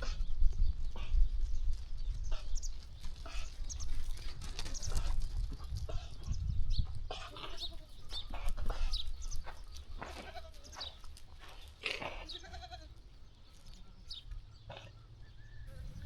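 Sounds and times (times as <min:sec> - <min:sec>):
rustling and knocks of animals moving: 0:00.0 - 0:14.5
sheep bleating: 0:10.0 - 0:11.0, 0:11.8 - 0:13.0.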